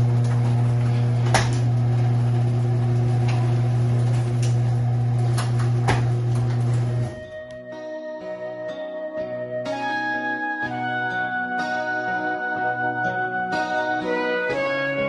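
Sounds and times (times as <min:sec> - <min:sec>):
snowblower engine running: 0:00.0 - 0:07.3.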